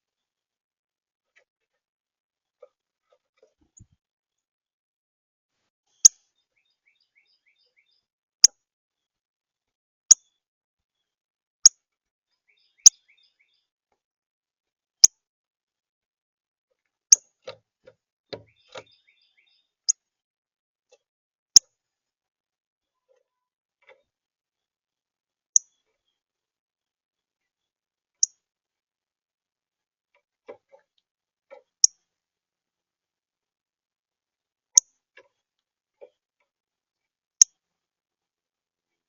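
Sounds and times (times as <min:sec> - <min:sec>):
faint bird twittering: 0:06.0 - 0:08.1, 0:12.4 - 0:13.7, 0:18.3 - 0:20.0.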